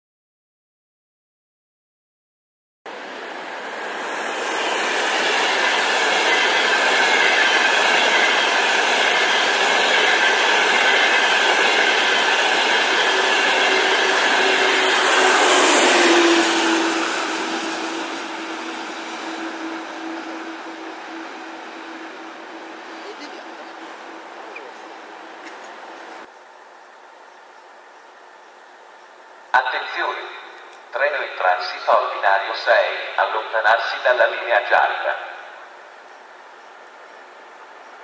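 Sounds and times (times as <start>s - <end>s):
high-speed train passing: 2.9s - 38.0s.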